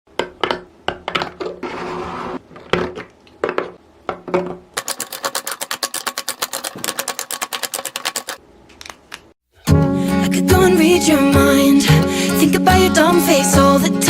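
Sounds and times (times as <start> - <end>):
fast sharp clicks: 4.8 - 8.4.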